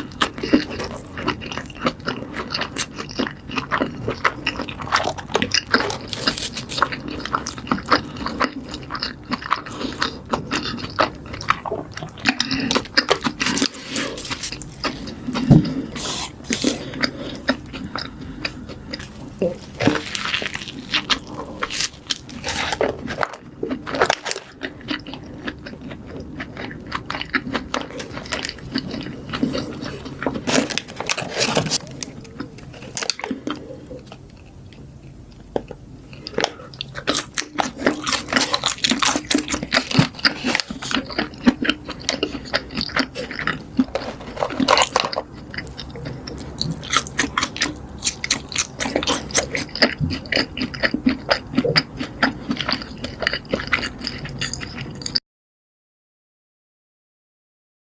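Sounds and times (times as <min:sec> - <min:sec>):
person chewing crunchy food: 0:00.0 - 0:55.2.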